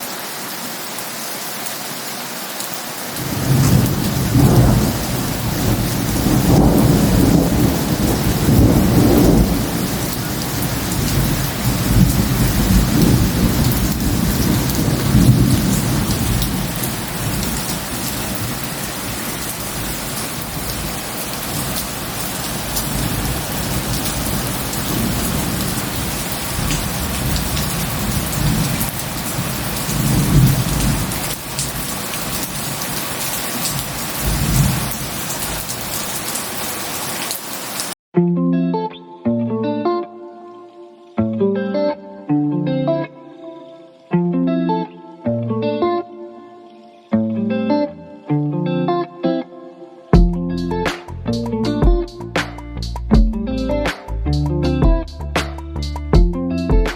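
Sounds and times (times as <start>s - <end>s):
heavy rain falling: 0.0s - 38.0s
thunder rumbling: 3.2s - 36.2s.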